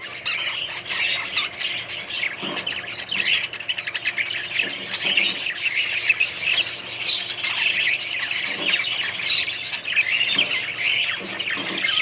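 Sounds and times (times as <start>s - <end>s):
budgerigars chattering: 0.0s - 12.0s.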